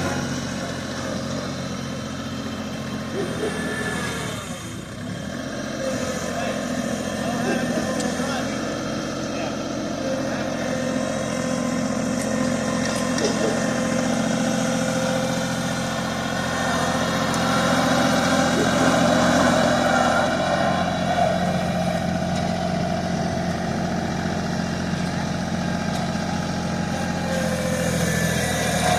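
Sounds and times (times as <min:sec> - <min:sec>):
tractor engine running: 0:00.0 - 0:28.9.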